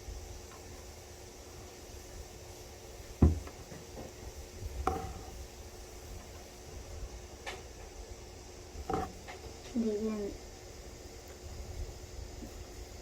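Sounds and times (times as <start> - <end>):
knocks on a hard surface: 3.2 - 4.1.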